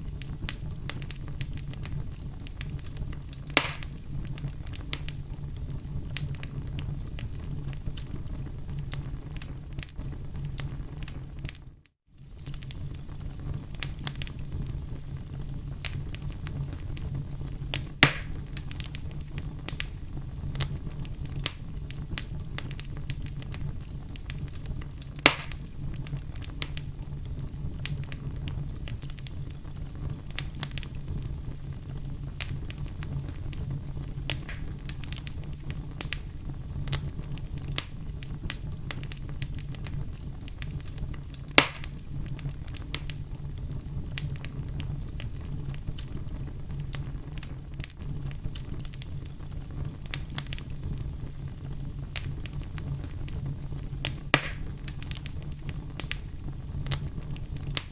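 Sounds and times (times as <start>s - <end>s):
fire crackling: 0.0s - 57.9s
fire flames rumbling: 0.0s - 57.9s
sharp loud pops: 3.6s - 4.0s, 18.0s - 18.3s, 25.3s - 25.6s, 41.6s - 41.9s, 54.4s - 54.7s.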